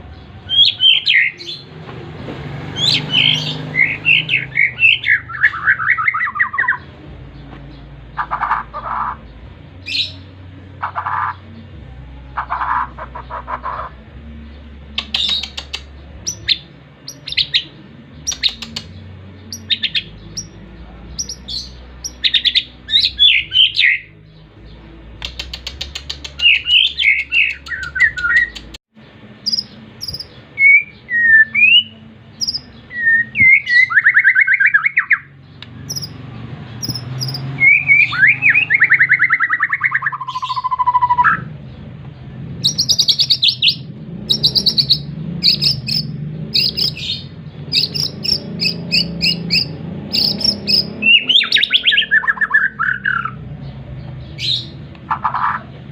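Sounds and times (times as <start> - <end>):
songbird chirping and trilling: 0.0 - 55.9.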